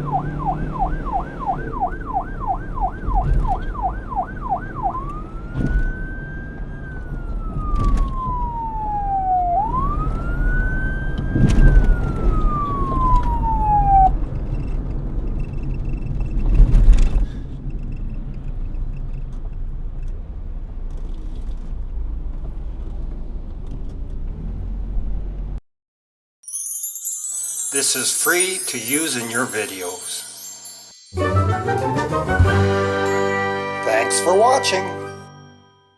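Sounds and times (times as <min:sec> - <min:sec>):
police siren wailing: 0:00.0 - 0:14.2, 0:31.2 - 0:35.4
low vehicle rumble: 0:00.0 - 0:25.6.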